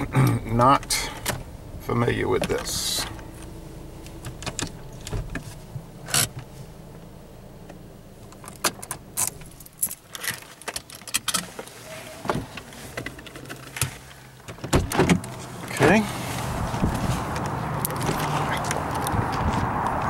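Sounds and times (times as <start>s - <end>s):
car engine idling: 0.0s - 10.6s, 11.5s - 20.0s
keys rattling: 8.8s - 11.5s.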